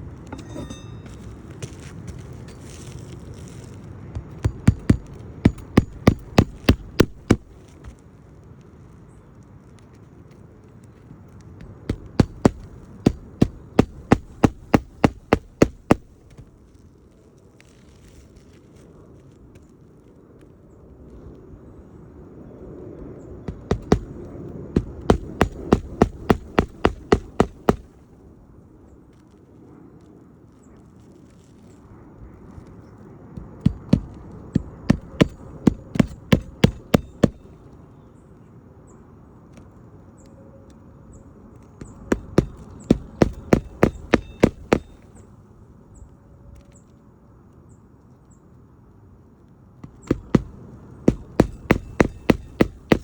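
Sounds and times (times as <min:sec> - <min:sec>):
hammer striking shingle roof: 0:04.2 - 0:07.8, 0:11.6 - 0:16.6, 0:23.5 - 0:28.0, 0:33.4 - 0:37.6, 0:41.8 - 0:45.1, 0:49.8 - 0:53.0.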